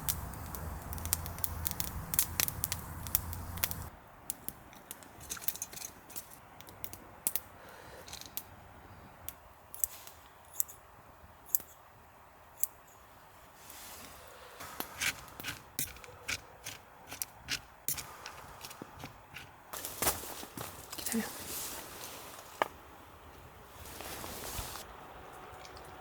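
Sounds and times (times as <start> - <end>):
low hum: 0.0 - 3.9.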